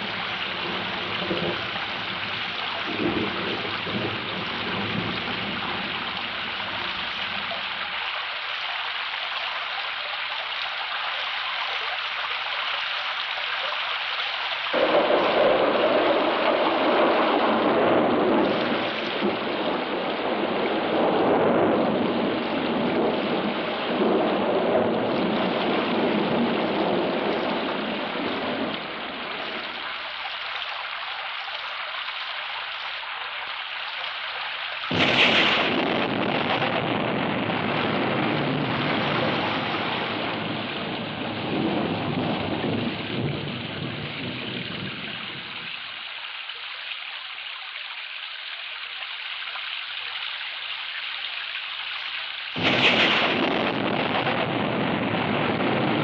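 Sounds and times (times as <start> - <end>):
sharp thunderclap: 0.0 - 6.1, 14.8 - 29.4, 34.9 - 44.4, 52.6 - 56.0
rolling thunder: 0.0 - 7.6, 14.7 - 29.8, 34.9 - 44.9, 52.6 - 56.0
rain hiss: 0.0 - 56.0.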